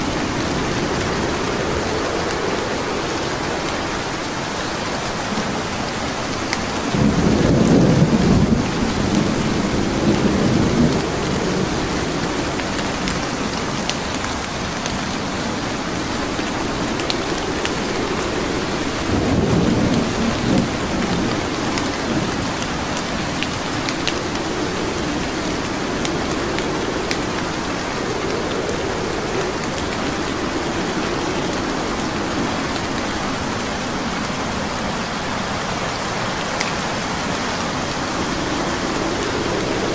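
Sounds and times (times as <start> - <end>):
steady rain: 0.0 - 39.9
wood fire crackling: 8.7 - 39.9.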